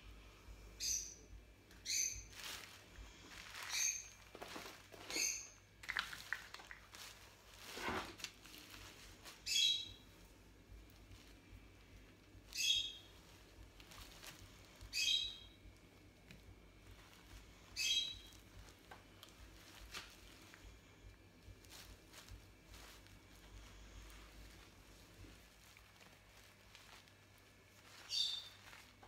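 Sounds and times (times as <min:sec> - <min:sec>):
small bird chirping: 0:00.8 - 0:02.4, 0:03.4 - 0:04.3, 0:05.0 - 0:05.7, 0:09.4 - 0:10.3, 0:12.4 - 0:13.5, 0:14.6 - 0:15.7, 0:17.2 - 0:18.7, 0:27.8 - 0:29.0
rustling of paper and plastic: 0:01.6 - 0:29.0.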